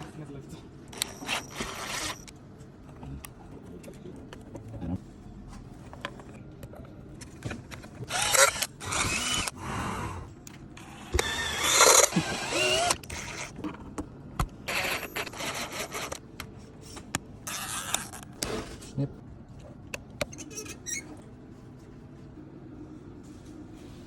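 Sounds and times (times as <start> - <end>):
cordless drill motor whirring: 1.0 - 2.3, 8.0 - 9.7, 10.8 - 13.5, 14.7 - 16.2.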